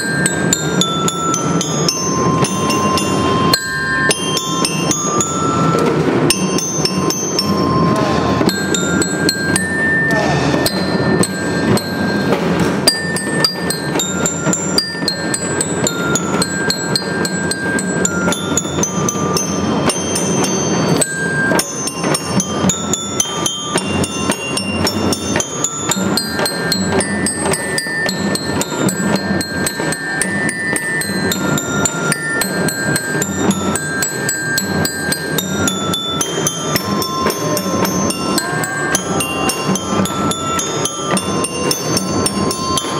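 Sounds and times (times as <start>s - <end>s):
bell-like melody: 0.0s - 42.9s
rapid drum strokes: 0.0s - 42.9s.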